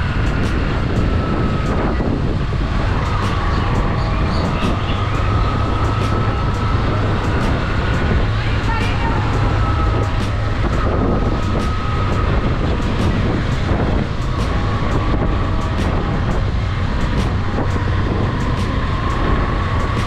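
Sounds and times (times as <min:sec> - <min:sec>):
wind noise on microphone: 0:00.0 - 0:20.0.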